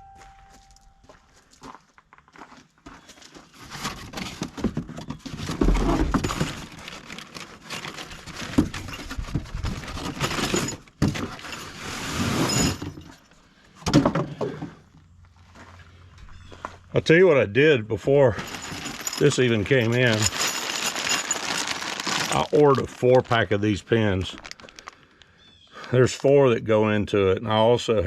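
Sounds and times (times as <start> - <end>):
packaging crackling and rustling: 3.2 - 12.0, 18.4 - 25.3.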